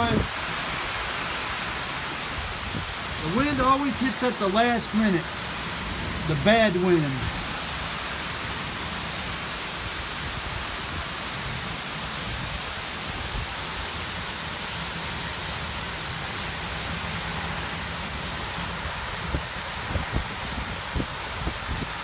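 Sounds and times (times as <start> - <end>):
gusty wind rumbling: 0.0 - 3.7, 18.7 - 22.0
heavy rain hissing: 0.0 - 22.0.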